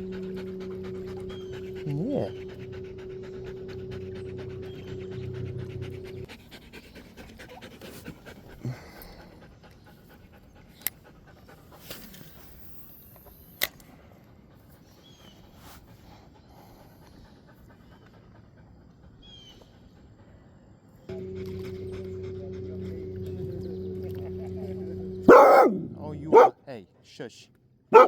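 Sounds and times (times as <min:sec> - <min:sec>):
motor hum: 0:00.0 - 0:06.3, 0:21.1 - 0:26.6
dog panting: 0:00.0 - 0:12.4, 0:14.1 - 0:23.2, 0:25.3 - 0:26.6.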